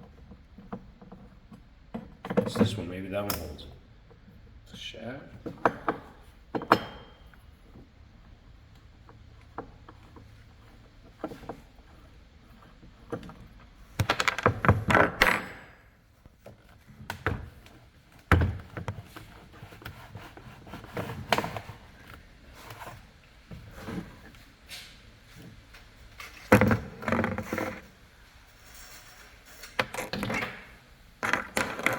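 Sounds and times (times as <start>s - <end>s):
hand tools knocking and rattling: 5.4s - 7.4s.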